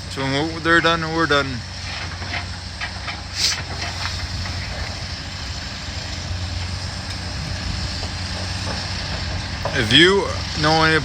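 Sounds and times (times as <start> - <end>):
diesel engine running: 0.0 - 11.0
short hiss: 3.3 - 4.3.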